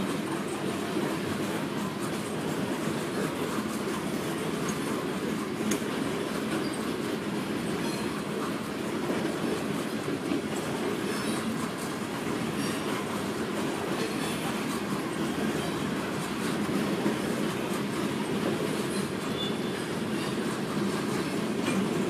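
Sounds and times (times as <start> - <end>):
freight train wheels clattering: 0.0 - 22.0
high wheel squeals: 18.9 - 20.4.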